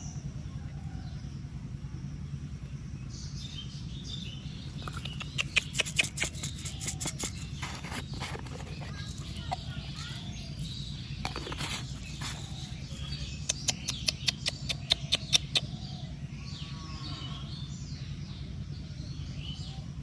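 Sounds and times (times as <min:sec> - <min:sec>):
small birds chirping: 0:02.6 - 0:20.0
sharp clicks: 0:04.7 - 0:15.6.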